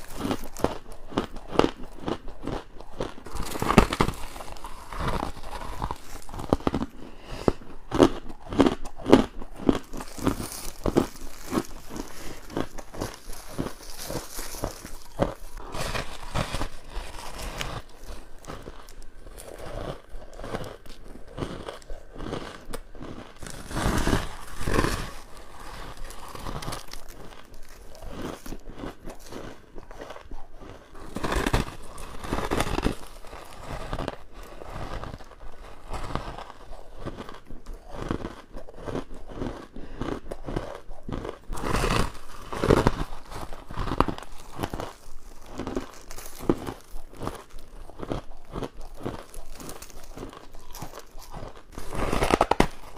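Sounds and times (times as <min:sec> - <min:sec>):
crunching ice chewing: 0:00.0 - 0:52.9.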